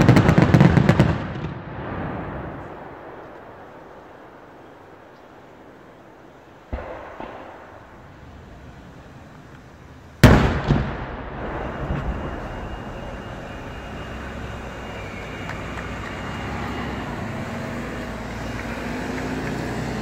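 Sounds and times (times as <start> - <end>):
firework bang echo: 0.0 - 5.2, 6.6 - 8.2, 10.2 - 16.9
vehicle engines running: 4.4 - 20.0.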